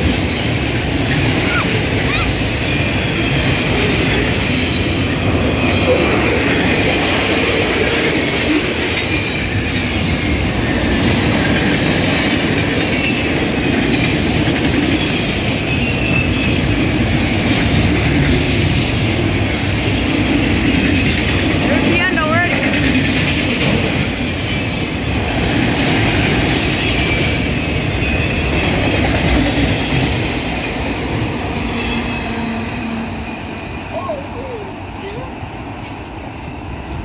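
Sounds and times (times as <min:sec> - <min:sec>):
wheels clattering on rail: 0:00.0 - 0:34.0.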